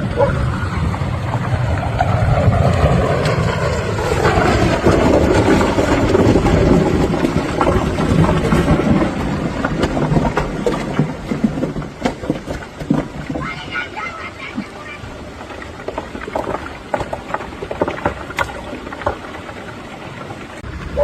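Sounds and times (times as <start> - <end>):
rushing noise with low rumble: 0.0 - 10.2, 20.4 - 21.0.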